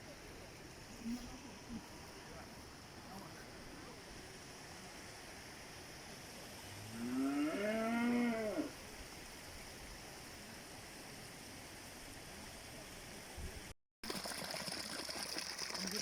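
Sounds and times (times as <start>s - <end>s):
cow mooing: 7.0s - 8.7s.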